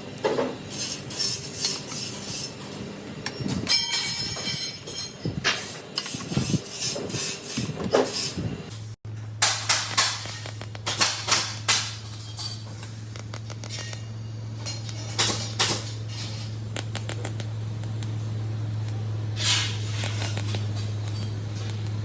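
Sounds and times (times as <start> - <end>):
welder electrical hum: 0.0 - 22.0.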